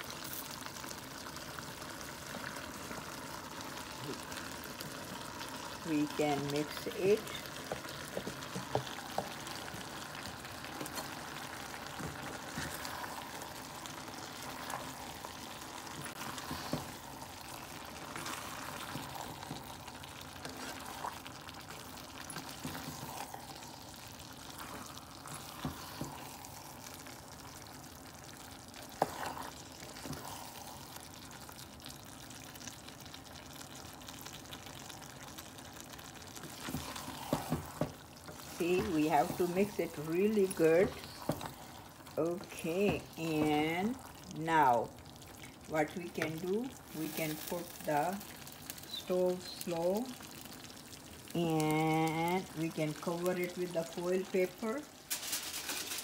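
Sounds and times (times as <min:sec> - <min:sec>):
food sizzling in a pot: 0:00.0 - 0:56.0
wooden spoon knocking and scraping pot: 0:07.2 - 0:13.4, 0:28.9 - 0:30.3, 0:36.4 - 0:41.7, 0:42.3 - 0:43.8.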